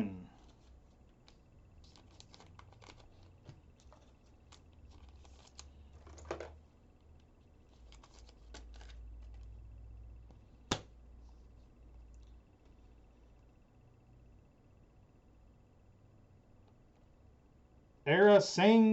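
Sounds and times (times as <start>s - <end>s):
low hum: 0.0s - 18.0s
trading cards rustling in sleeves: 0.1s - 13.0s.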